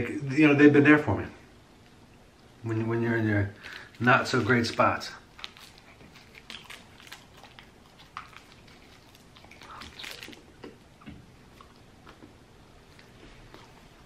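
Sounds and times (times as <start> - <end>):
man biting and chewing: 5.2 - 14.0.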